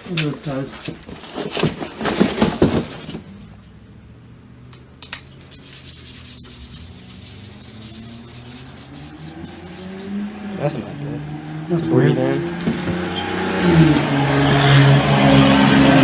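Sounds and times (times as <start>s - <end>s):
rubbing and scraping: 0.0s - 3.4s, 5.4s - 10.3s, 11.7s - 16.0s
car engine hum: 2.6s - 16.0s
sharp clicks: 4.7s - 5.5s.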